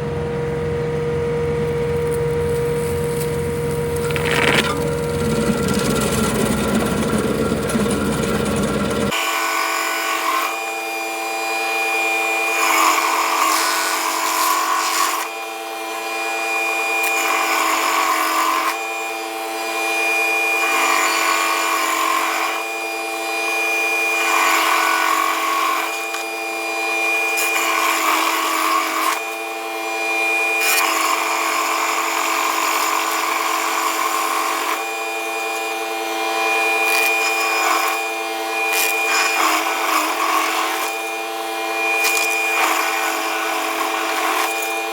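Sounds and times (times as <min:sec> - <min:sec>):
cutter wheel grinding wood: 0:00.0 - 0:44.9
stump grinder whining: 0:00.0 - 0:44.9.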